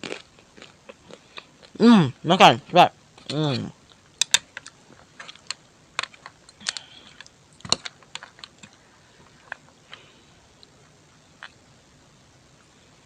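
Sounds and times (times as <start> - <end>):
chewing with wet clicks: 3.8 - 8.8.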